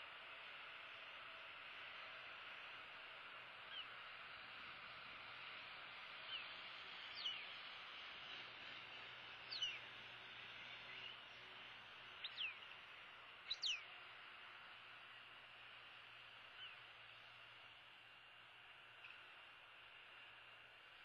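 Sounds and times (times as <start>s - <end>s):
bird chirping: 7.1s - 7.6s, 9.5s - 9.9s, 12.2s - 12.7s, 13.5s - 13.9s.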